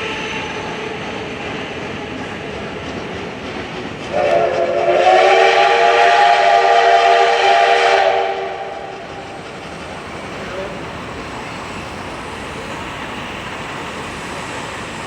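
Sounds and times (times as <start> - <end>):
steam locomotive whistle: 4.1 - 9.0.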